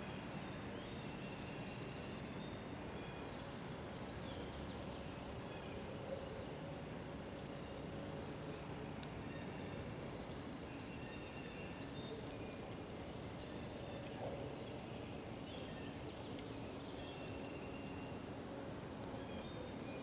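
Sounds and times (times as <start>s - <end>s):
faint crackles: 0.0s - 20.0s
outdoor background hiss: 0.0s - 20.0s
wild birds chirping: 7.4s - 20.0s.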